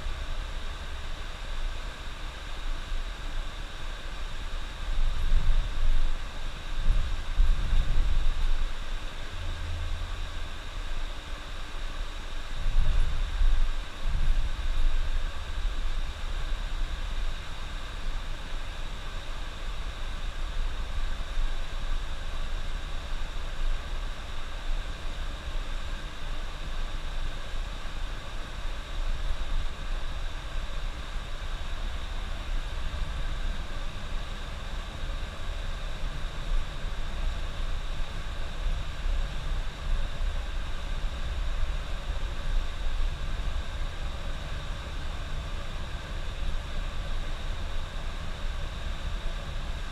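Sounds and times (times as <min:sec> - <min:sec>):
bus engine drone: 0:07.6 - 0:11.0.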